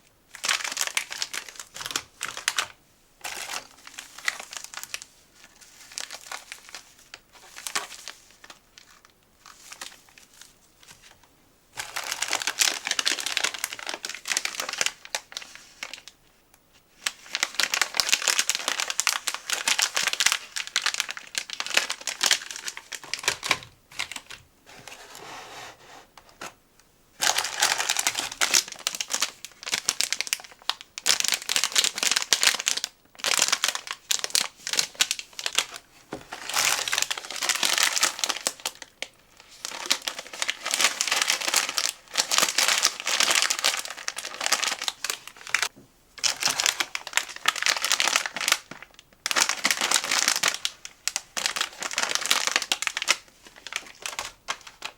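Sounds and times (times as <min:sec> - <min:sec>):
snack packaging crinkling: 0:00.3 - 0:11.1, 0:11.8 - 0:16.1, 0:17.0 - 0:24.9, 0:27.2 - 0:54.9.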